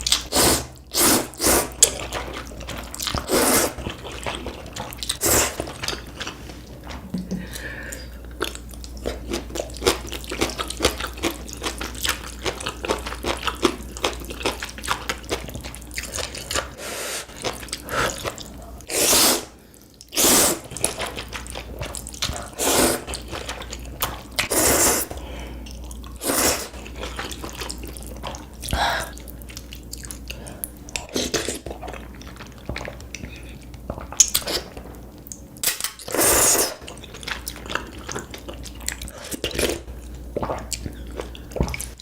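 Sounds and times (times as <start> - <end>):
wet chewing and mouth clicks: 0.0 - 18.9, 19.8 - 42.0
noodle slurps: 0.1 - 6.6, 16.1 - 23.7, 24.4 - 25.2, 26.2 - 27.6, 36.1 - 38.4.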